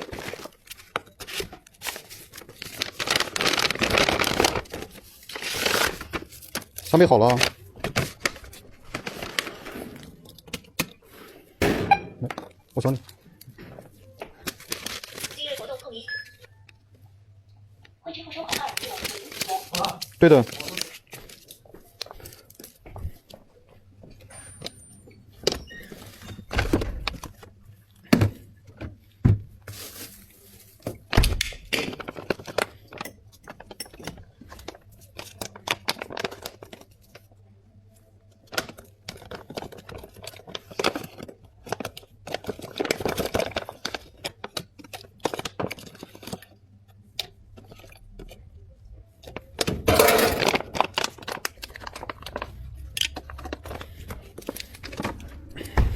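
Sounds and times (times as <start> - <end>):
cups and utensils clattering: 49.8 - 50.9.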